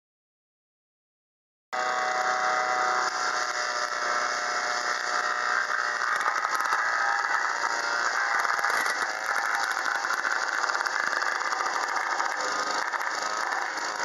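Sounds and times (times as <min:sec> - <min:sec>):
wood chipper running: 0:01.8 - 0:14.0.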